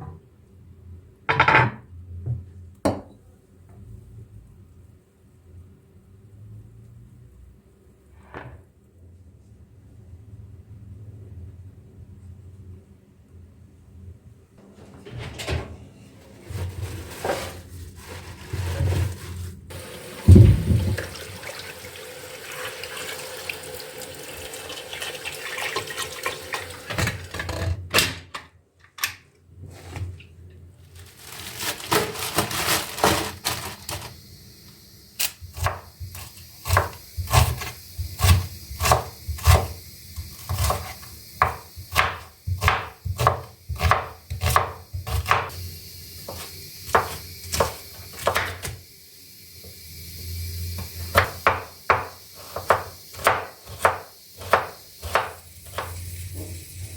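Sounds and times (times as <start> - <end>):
tap running into sink: 19.7 - 27.5
knife chopping on wooden board: 35.6 - 39.7, 40.4 - 45.5, 46.3 - 48.7, 51.1 - 55.9.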